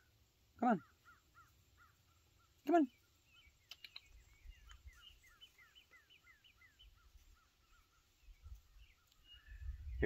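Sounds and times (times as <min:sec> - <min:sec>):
small bird chirping: 0:00.0 - 0:10.0
light clicks: 0:03.6 - 0:04.8.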